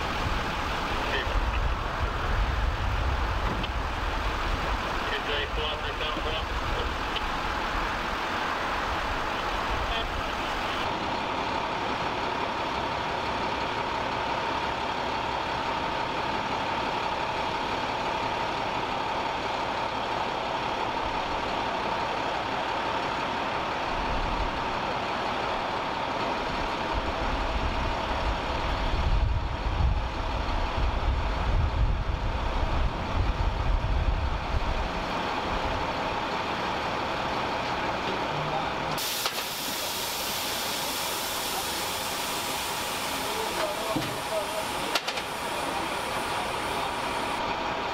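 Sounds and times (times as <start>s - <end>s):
constant hum: 0.0s - 12.8s, 37.6s - 47.9s
low rumbling: 0.0s - 38.8s
large vehicle engine idling: 0.0s - 47.9s.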